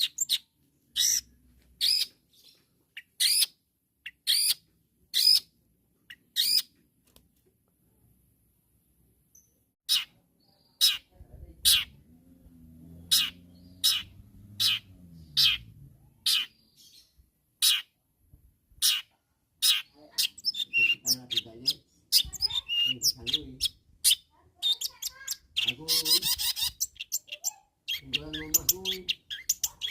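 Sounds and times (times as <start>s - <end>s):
bird chattering and whistling: 1.0s - 2.1s, 3.0s - 4.6s, 5.2s - 5.5s, 6.1s - 6.7s, 9.9s - 12.0s, 13.0s - 17.0s, 18.8s - 29.9s.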